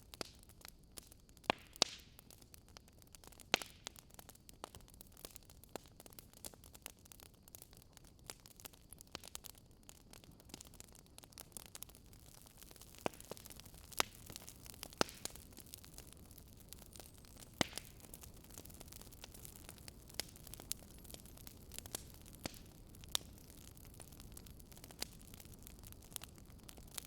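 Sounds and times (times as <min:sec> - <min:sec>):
low steady hiss: 0:00.0 - 0:27.0
wood fire crackling: 0:00.0 - 0:27.0.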